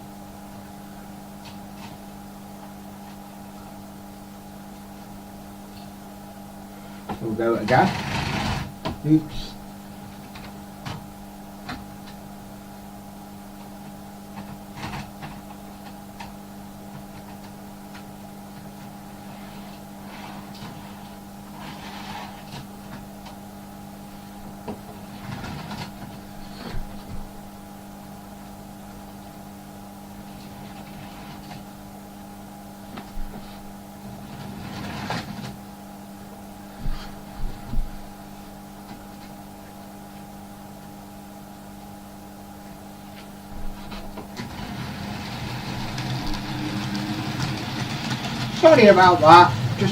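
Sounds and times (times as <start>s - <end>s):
steady electrical hum: 0.0s - 49.9s
hands handling model railway: 34.2s - 35.6s, 43.9s - 49.8s.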